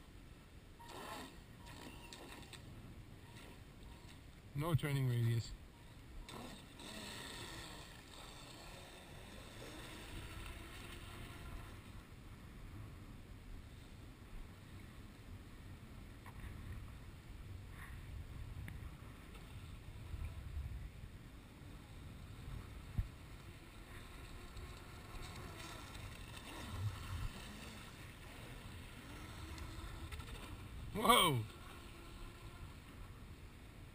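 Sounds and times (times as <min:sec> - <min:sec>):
rc boat electric motor whine: 0:00.8 - 0:04.3, 0:05.7 - 0:12.2, 0:21.6 - 0:33.4
wind rumbling on microphone: 0:07.7 - 0:33.9.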